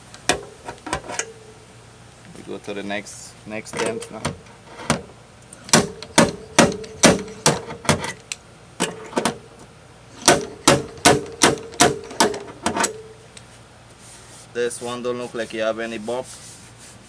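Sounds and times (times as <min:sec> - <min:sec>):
hammer striking sheet metal: 0:05.7 - 0:08.1, 0:10.2 - 0:13.0.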